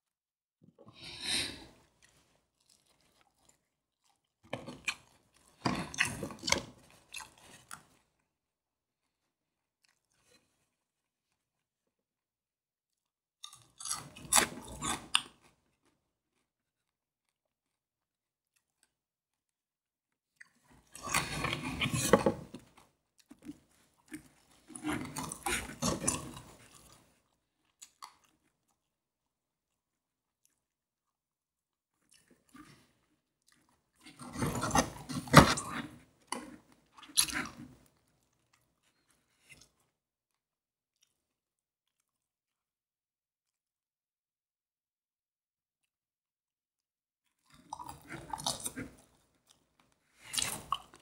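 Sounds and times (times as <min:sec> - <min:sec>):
crunching of fried chicken bites: 0:01.0 - 0:08.2, 0:13.4 - 0:19.0, 0:20.3 - 0:29.1, 0:31.9 - 0:42.6, 0:47.3 - 0:51.0.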